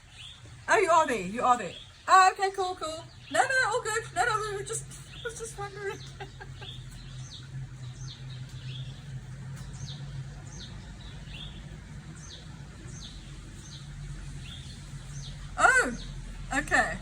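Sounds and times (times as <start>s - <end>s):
bird chirping: 0.0s - 17.0s
steady low hum: 0.0s - 17.0s.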